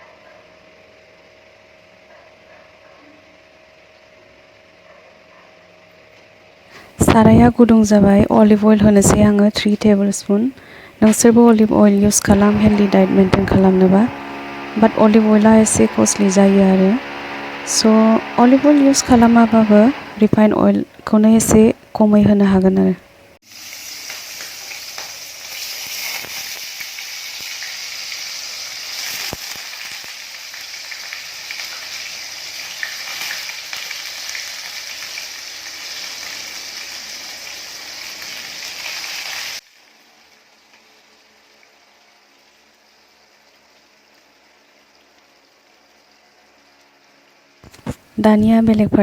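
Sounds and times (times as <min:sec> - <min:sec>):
food sizzling in a frying pan: 0:23.4 - 0:47.7.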